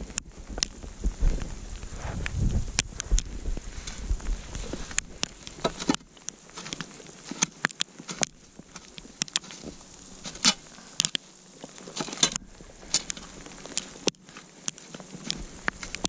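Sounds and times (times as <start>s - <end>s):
burning wood popping and snapping: 0.0s - 16.0s
campfire crackling: 0.0s - 16.0s
faint hiss: 0.0s - 16.0s.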